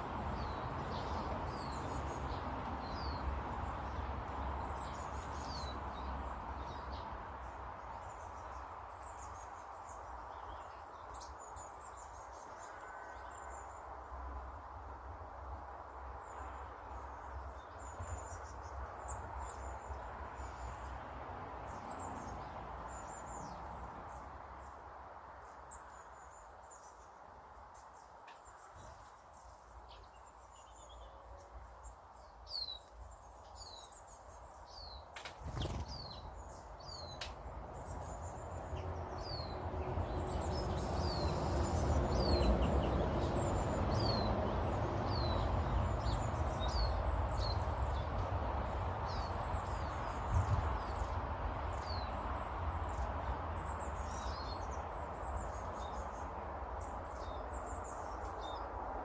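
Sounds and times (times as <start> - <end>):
small birds chirping: 0.0 - 13.8, 16.0 - 21.0, 21.6 - 59.0.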